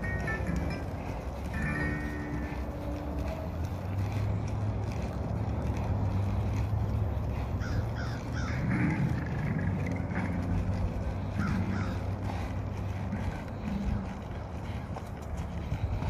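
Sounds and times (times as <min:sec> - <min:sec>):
low hum: 0:00.0 - 0:16.0
outdoor noise: 0:00.0 - 0:16.0
bird cawing harshly: 0:07.6 - 0:08.6.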